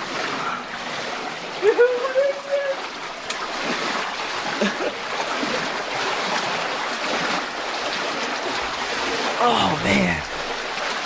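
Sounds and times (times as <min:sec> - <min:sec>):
feet wading and splashing: 0:00.0 - 0:11.0
flowing water rushing: 0:00.0 - 0:11.0.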